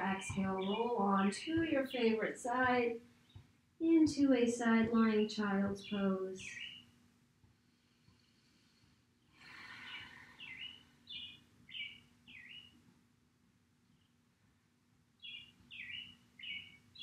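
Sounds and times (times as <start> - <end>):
songbird singing faintly: 0.0 - 2.3, 5.0 - 7.0, 9.7 - 12.8, 15.2 - 17.0.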